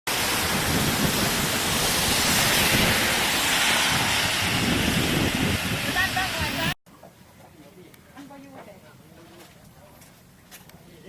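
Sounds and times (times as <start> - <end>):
hail and heavy rain pelting: 0.1 - 6.8
wind: 0.1 - 11.0.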